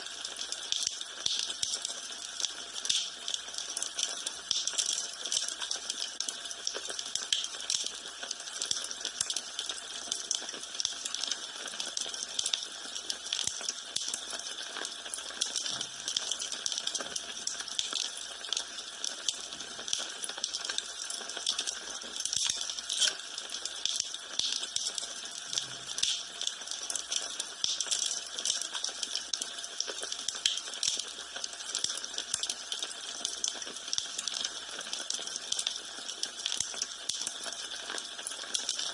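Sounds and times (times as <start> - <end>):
wood fire crackling: 20.4 - 29.5.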